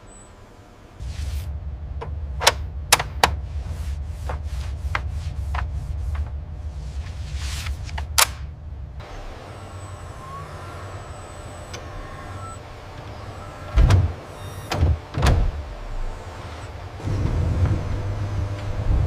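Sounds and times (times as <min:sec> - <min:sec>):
low steady rumble: 0:00.0 - 0:19.0
soft hissing: 0:01.0 - 0:01.6
sharp clicks and knocks: 0:02.0 - 0:03.6, 0:04.2 - 0:06.4.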